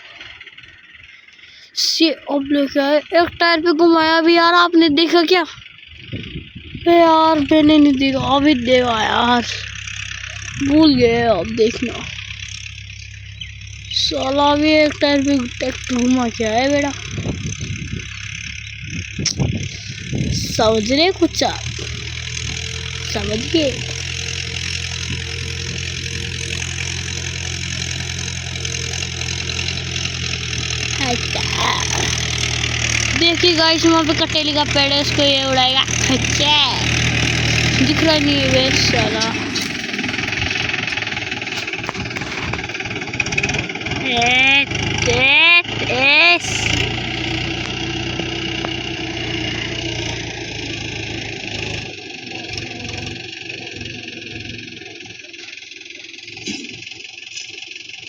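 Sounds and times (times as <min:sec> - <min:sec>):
diesel tractor engine running: 0:00.0 - 0:58.0.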